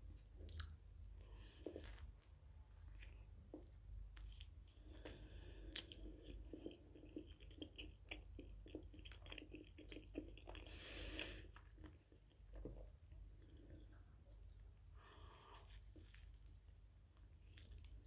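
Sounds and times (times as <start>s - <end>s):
soft chewing: 0.0s - 18.0s.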